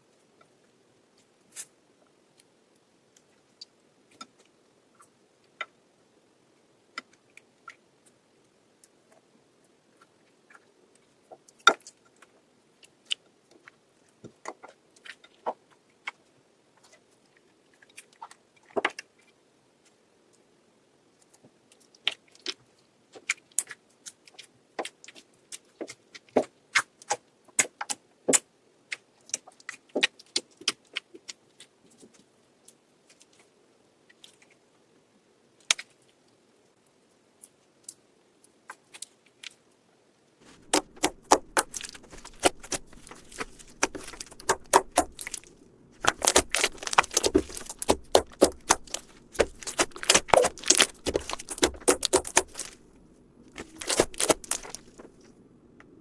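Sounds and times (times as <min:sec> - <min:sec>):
slime clicking and popping: 0:40.6 - 0:52.8, 0:53.5 - 0:55.0.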